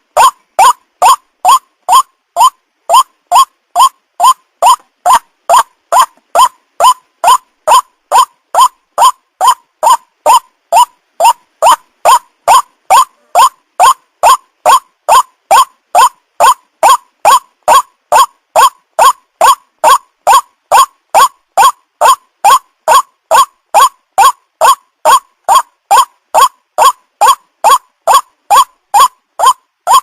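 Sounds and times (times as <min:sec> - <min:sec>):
waterhen calling: 0:00.0 - 0:30.0.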